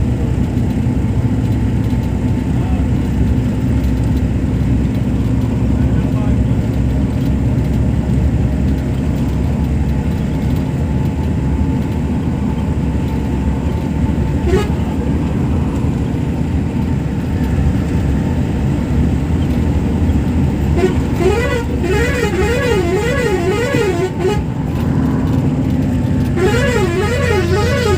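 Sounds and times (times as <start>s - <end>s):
vehicle engine rumbling: 0.0s - 27.9s
warbling horn: 14.4s - 14.9s, 20.6s - 24.5s, 26.2s - 27.9s.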